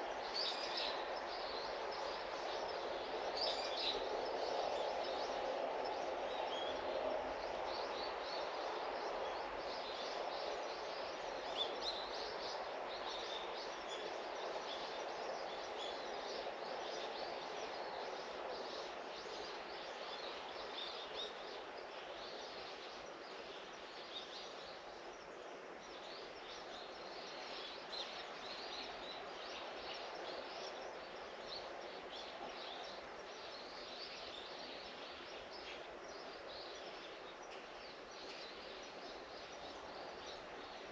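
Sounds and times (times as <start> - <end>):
low background hiss: 0.0 - 40.9.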